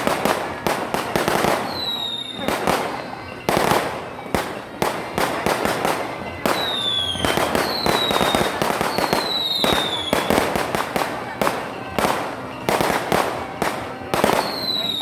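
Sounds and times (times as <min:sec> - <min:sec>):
fireworks bangs: 0:00.0 - 0:15.0
fireworks crackling: 0:00.0 - 0:15.0
whistling shells: 0:06.5 - 0:10.6, 0:11.5 - 0:15.0.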